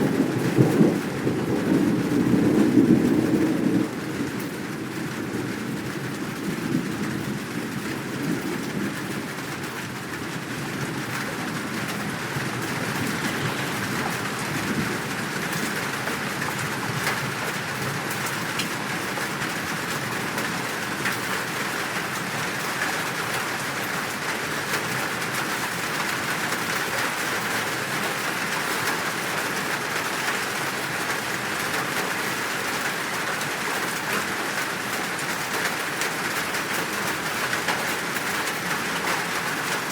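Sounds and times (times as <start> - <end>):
low rumble of thunder: 0.0 - 21.0
heavy rain pouring: 0.0 - 39.9.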